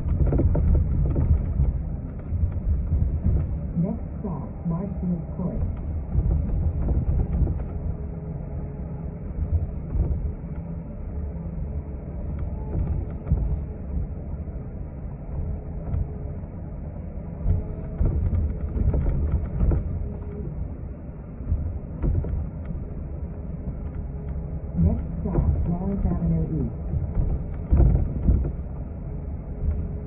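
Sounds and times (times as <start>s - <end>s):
small knocks and rattles: 0.0s - 3.6s, 5.6s - 7.8s, 17.4s - 20.3s, 21.4s - 22.8s, 27.0s - 28.8s
bus engine and tyres rumbling: 0.0s - 30.0s.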